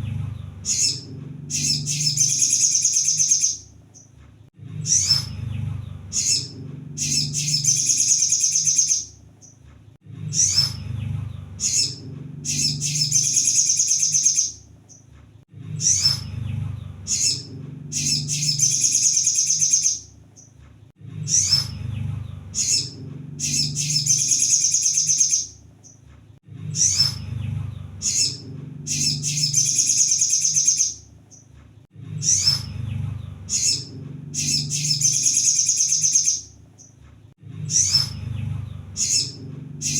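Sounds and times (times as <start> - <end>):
bird chips and fast high trill: 0.7 - 3.6, 6.2 - 9.1, 11.6 - 14.6, 18.0 - 20.1, 22.6 - 25.5, 28.0 - 31.0, 33.5 - 36.5.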